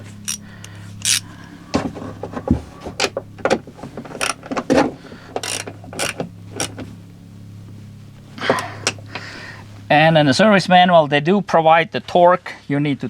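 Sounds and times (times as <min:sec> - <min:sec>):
ratchet wrench clicking: 0:00.2 - 0:01.2, 0:04.2 - 0:04.4, 0:05.4 - 0:06.8.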